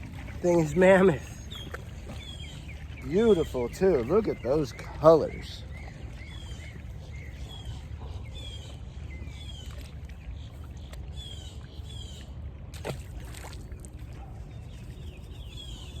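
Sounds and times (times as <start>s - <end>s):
small birds chirping: 0.0s - 12.3s, 14.2s - 16.0s
steady low rumble: 0.0s - 16.0s.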